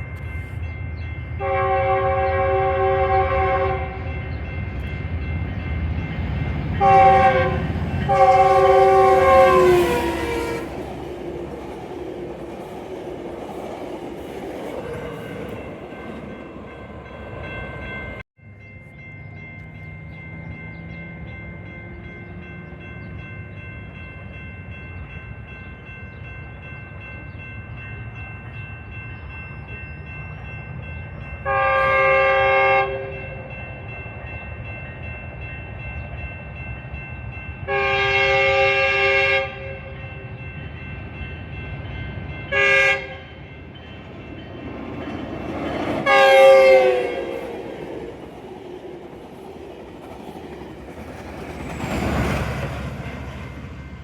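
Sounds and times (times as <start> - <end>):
train running: 0.0 - 54.0
locomotive air horn: 1.4 - 4.1, 6.8 - 10.8, 31.4 - 33.2, 37.7 - 40.0, 42.5 - 43.3, 46.0 - 47.5.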